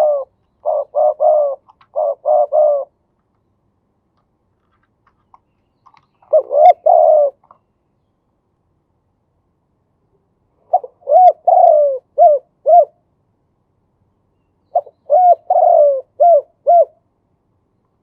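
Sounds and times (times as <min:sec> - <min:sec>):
dove cooing: 0:00.0 - 0:03.0, 0:06.2 - 0:07.4, 0:10.6 - 0:13.0, 0:14.7 - 0:17.1.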